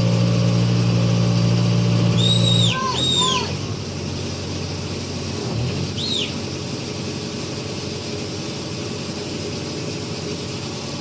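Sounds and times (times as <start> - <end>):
heavy machine engine running: 0.0 - 11.0
short rising-and-falling chirp: 2.2 - 3.5, 6.0 - 6.4.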